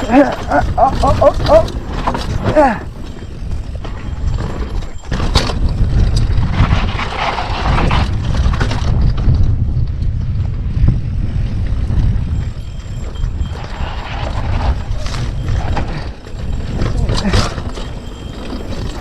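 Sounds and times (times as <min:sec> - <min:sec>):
bike knocks and rattles: 0:00.0 - 0:10.8
wind rumble on microphone: 0:00.0 - 0:19.0.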